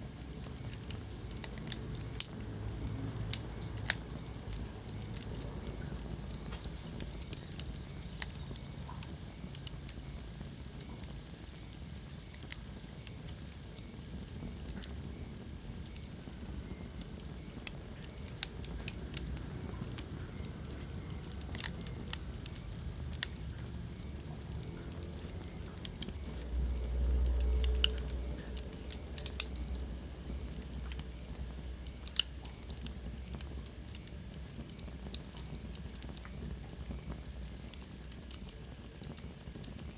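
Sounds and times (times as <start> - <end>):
wood fire crackling: 0.0 - 39.9
low rumble: 18.6 - 32.0.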